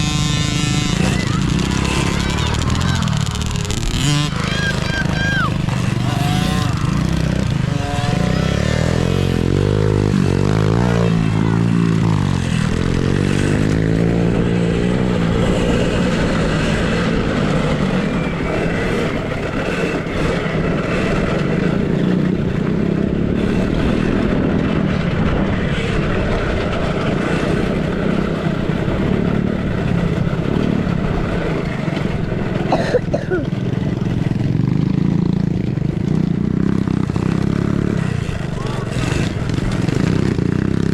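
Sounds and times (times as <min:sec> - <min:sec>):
continuous rushing noise: 0:00.0 - 0:40.9
small motorcycle engines revving: 0:00.0 - 0:40.9.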